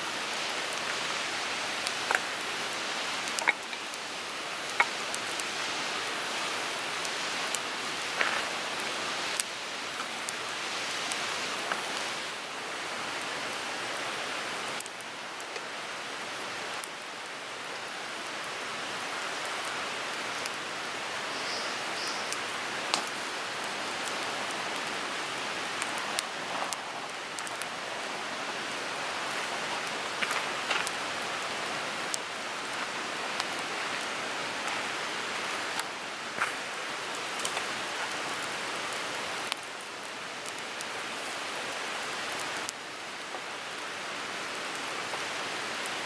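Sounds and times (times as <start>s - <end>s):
wood fire crackling: 0.0s - 46.0s
sharp pops of burning wood: 1.7s - 5.6s, 22.3s - 25.0s, 28.7s - 34.0s, 34.6s - 38.5s.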